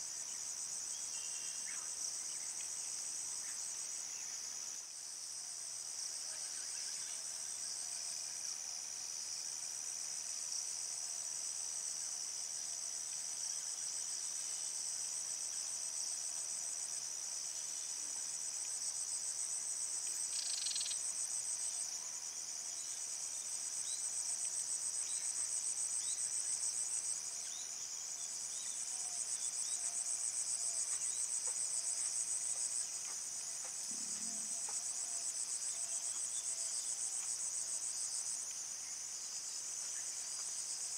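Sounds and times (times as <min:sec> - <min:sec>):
insects trilling: 0:19.9 - 0:21.6, 0:24.6 - 0:40.9.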